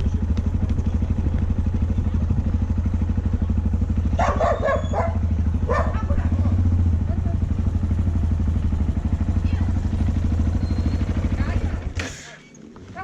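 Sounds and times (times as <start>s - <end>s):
motorcycle engine droning: 0.0s - 13.0s
dog barking: 4.1s - 7.5s.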